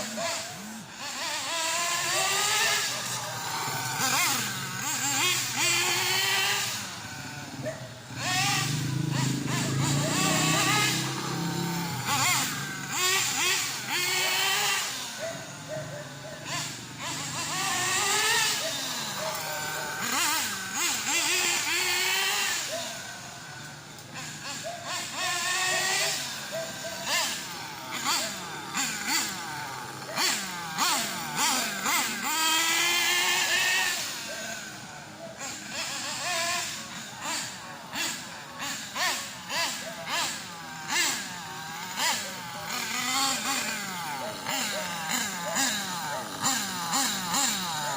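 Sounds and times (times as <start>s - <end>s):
model car nitro engine revving: 0.0s - 47.9s.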